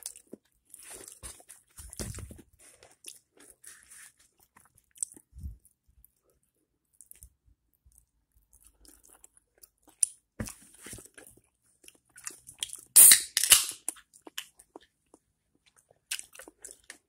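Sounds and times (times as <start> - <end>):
person chewing crunchy chicken: 2.7 - 5.8, 8.0 - 10.3, 11.0 - 12.9, 13.8 - 17.0.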